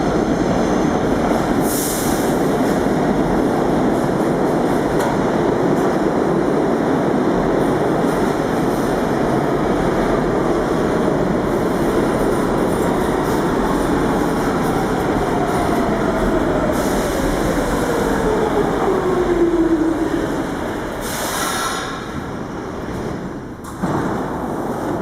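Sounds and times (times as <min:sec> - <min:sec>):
subway train rumbling: 0:00.0 - 0:25.0.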